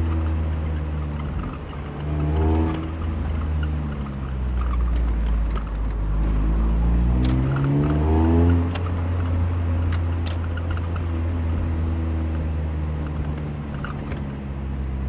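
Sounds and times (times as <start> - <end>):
car engine revving through gears: 0.0 - 15.0.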